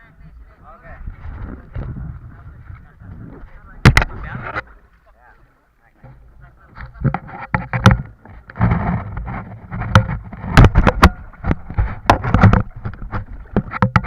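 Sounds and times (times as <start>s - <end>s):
knocks and water splashes: 3.6s - 5.2s, 6.0s - 14.0s.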